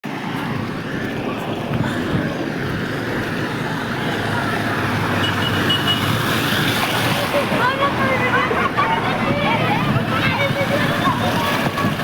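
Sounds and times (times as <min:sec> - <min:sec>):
wind: 0:00.0 - 0:12.0
heavy rain pouring: 0:00.2 - 0:05.2, 0:06.0 - 0:12.0.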